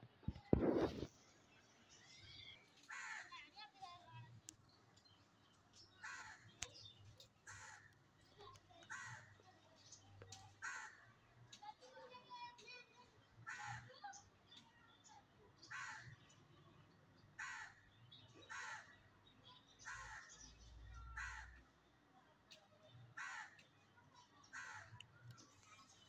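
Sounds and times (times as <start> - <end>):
bird cawing: 2.9 - 3.4, 6.0 - 6.5, 7.5 - 8.0, 8.9 - 9.3, 10.6 - 11.0, 13.5 - 13.9, 15.7 - 16.1, 17.4 - 17.8, 18.5 - 18.9, 19.9 - 20.4, 21.2 - 21.6, 23.2 - 23.6, 24.5 - 25.0.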